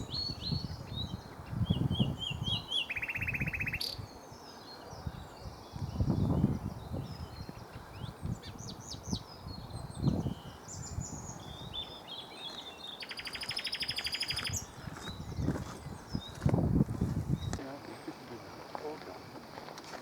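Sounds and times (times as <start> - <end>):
nightingale singing: 0.0 - 16.5, 17.2 - 19.5.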